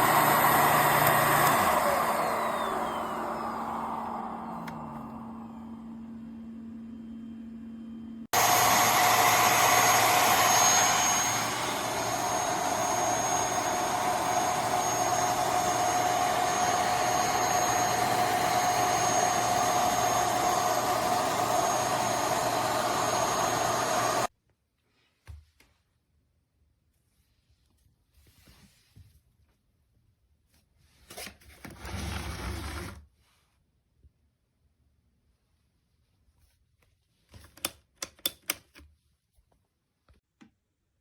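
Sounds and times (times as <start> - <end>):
vacuum motor whine and suction: 0.0 - 24.3.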